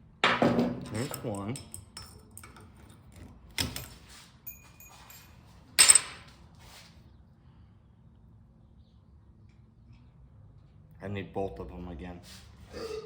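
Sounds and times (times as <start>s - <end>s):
metal tools knocking and clanking: 0.2s - 5.2s, 5.8s - 6.3s.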